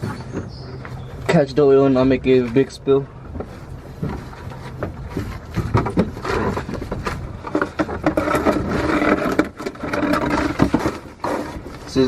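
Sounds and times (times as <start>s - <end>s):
drain pan scraping on ground: 4.0s - 12.0s.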